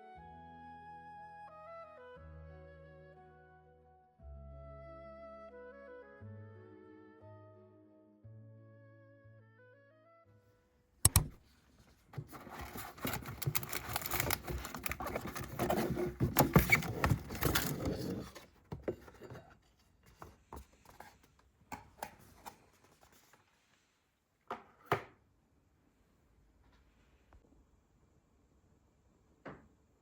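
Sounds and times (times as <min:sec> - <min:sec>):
scratching and rustling: 0:11.4 - 0:23.7.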